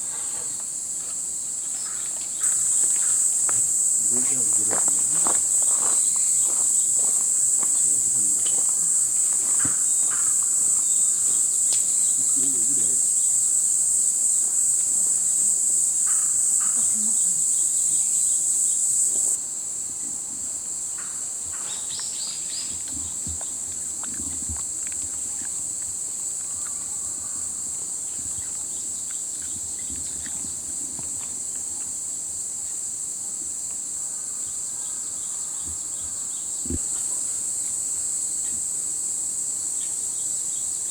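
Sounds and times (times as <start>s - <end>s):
crickets chirping: 0.0s - 40.9s
faint voices: 4.0s - 6.0s, 12.2s - 13.1s.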